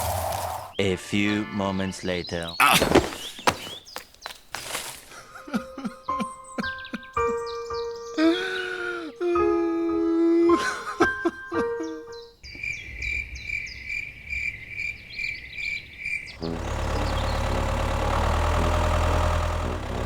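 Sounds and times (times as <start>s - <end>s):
small tractor engine running: 16.4s - 20.0s.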